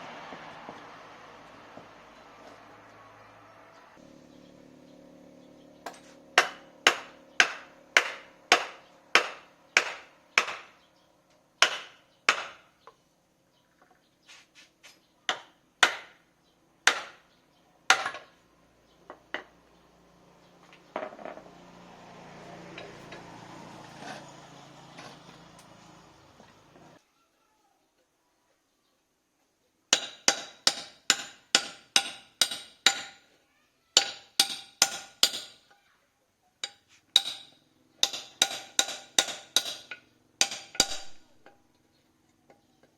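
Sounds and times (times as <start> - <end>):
hammer striking metal: 5.8 - 10.8, 11.6 - 12.6, 29.9 - 33.3, 34.0 - 35.7, 36.6 - 41.5.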